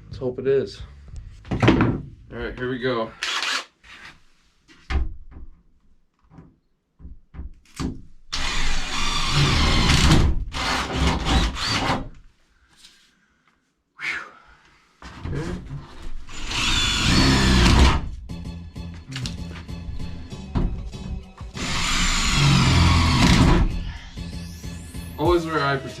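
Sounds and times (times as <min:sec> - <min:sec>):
power drill drilling sheet metal: 0:03.2 - 0:03.7, 0:08.3 - 0:12.1, 0:16.3 - 0:18.0, 0:21.5 - 0:23.8.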